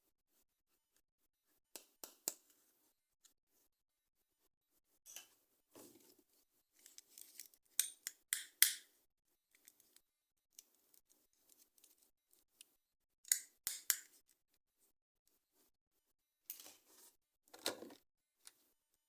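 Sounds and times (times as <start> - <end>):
small clicks and rustles: 5.1 - 7.8, 9.5 - 12.8.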